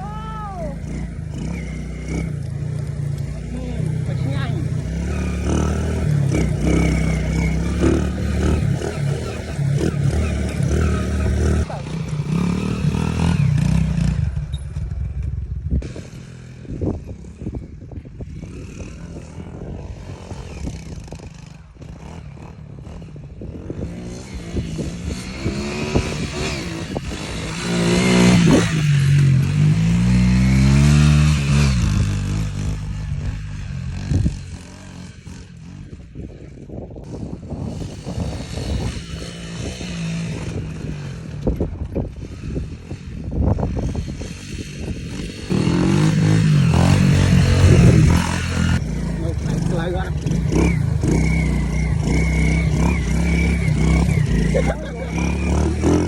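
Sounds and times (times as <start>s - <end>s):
motorbike engine running: 24.9s - 56.0s.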